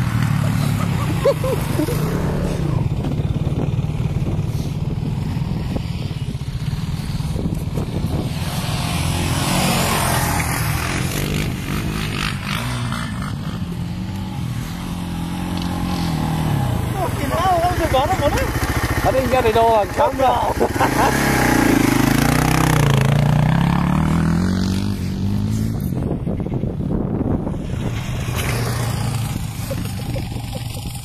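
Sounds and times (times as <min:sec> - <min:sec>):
quad bike engine revving: 0:00.0 - 0:26.0, 0:27.4 - 0:31.0.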